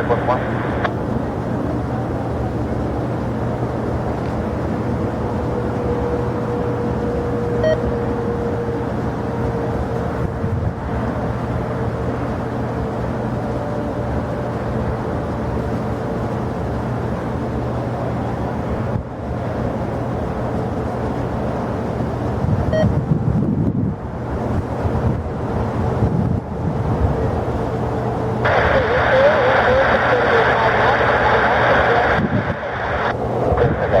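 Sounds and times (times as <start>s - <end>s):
jet engines rumbling: 0.0s - 34.0s
short beeps: 7.6s - 7.9s, 22.7s - 22.9s.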